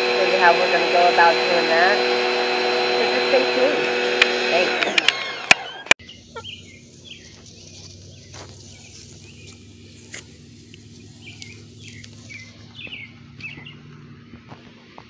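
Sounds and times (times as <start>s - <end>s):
low steady hum: 0.0s - 15.0s
birds chirping: 5.2s - 15.0s.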